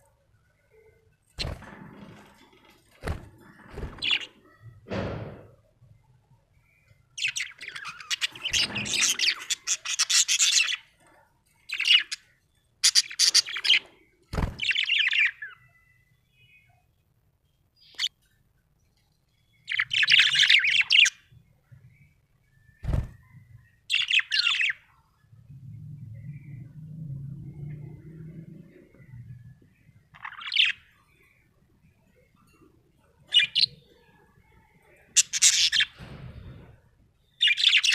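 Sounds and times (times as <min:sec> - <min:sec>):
parrot chirping: 0:06.6 - 0:11.0, 0:11.7 - 0:13.9, 0:30.1 - 0:31.3, 0:37.4 - 0:37.9.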